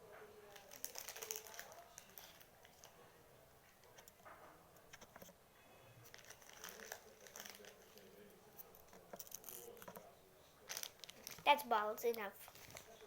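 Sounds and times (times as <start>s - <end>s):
foam balls crinkling in slime: 0.5s - 3.0s, 6.1s - 9.9s, 10.7s - 13.0s.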